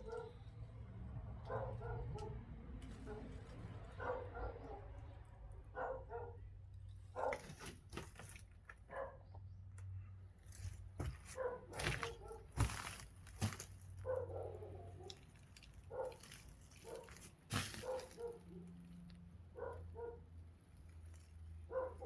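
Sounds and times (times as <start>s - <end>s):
dog barking: 0.0s - 0.4s, 1.4s - 2.4s, 4.0s - 4.9s, 5.7s - 6.5s, 7.2s - 7.5s, 8.9s - 9.2s, 11.3s - 12.5s, 14.0s - 15.2s, 15.9s - 16.2s, 16.8s - 18.6s, 19.5s - 20.3s, 21.7s - 22.0s.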